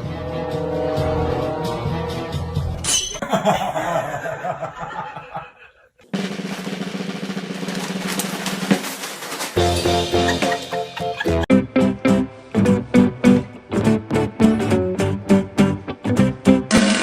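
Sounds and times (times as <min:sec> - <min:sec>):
background music with drums: 0:06.1 - 0:15.4.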